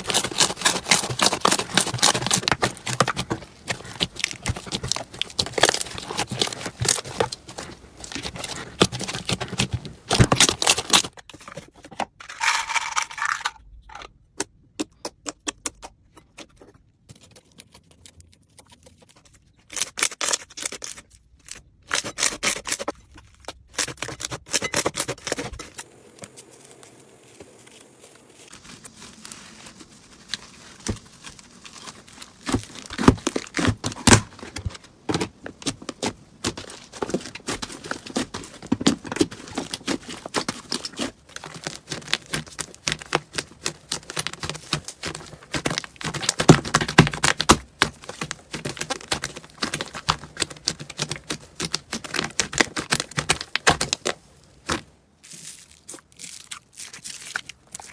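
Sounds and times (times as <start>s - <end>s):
slime crackling and popping: 0.0s - 11.0s, 25.0s - 34.3s, 36.0s - 57.9s.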